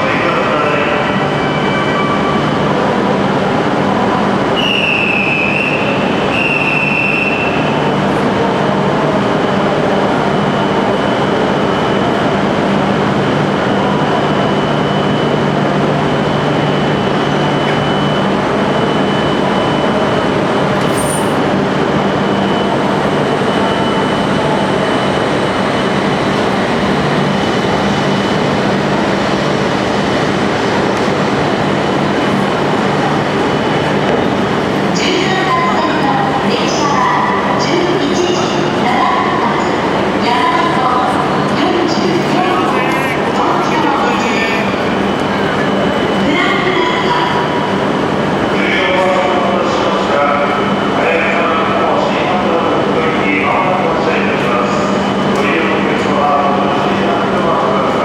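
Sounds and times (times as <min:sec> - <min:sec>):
train rushing rumble: 0:05.5 - 0:58.0.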